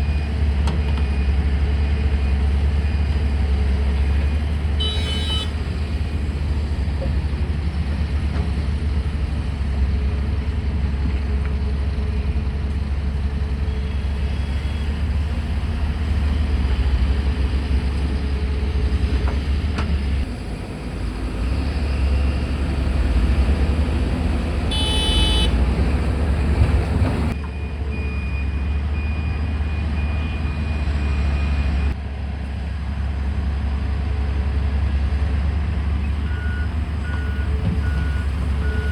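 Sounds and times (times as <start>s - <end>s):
excavator diesel engine running: 0.0s - 38.9s
vehicle horn toot: 4.8s - 5.6s, 24.7s - 25.8s
faint reversing beeps: 27.4s - 32.0s, 36.0s - 38.9s.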